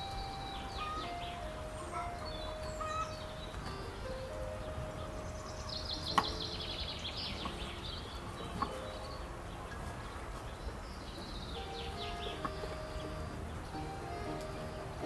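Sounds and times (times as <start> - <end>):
bird singing fast trill: 0.0 - 15.0.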